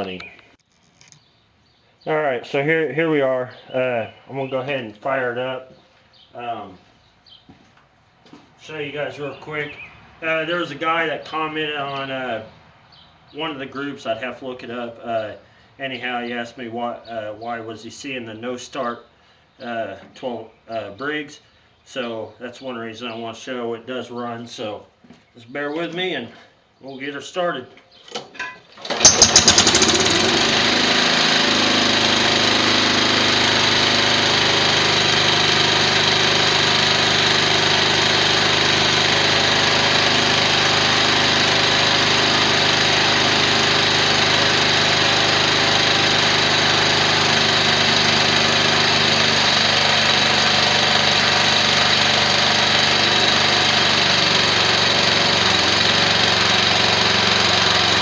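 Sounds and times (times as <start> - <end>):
small engine starting and running: 28.8 - 58.0.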